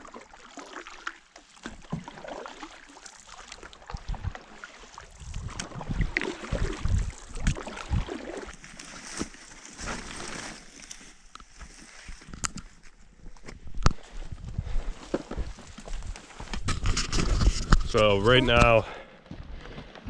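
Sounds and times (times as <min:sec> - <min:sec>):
paddle splashing in water: 0:00.0 - 0:12.4.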